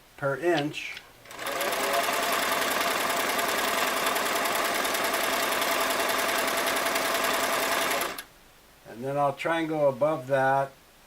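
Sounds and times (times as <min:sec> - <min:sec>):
sewing machine running: 0:01.2 - 0:08.3.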